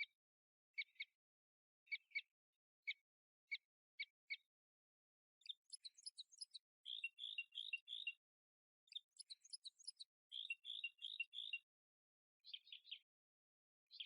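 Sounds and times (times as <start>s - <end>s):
bird chirping: 0.8s - 1.2s, 1.9s - 2.3s, 5.4s - 8.2s, 8.9s - 11.7s, 12.4s - 13.1s.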